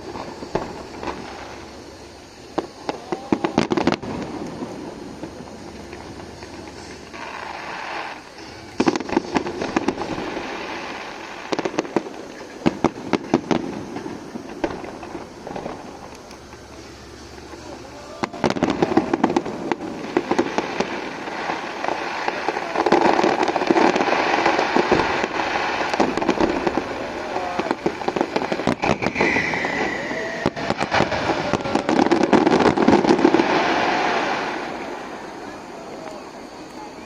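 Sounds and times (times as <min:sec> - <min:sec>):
fireworks crackling barrage: 0:00.0 - 0:37.0.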